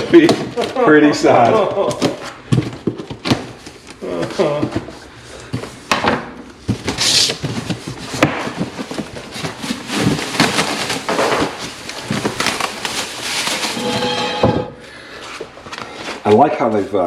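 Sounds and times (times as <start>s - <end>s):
cardboard and plastic packaging rustling: 0.0s - 17.0s.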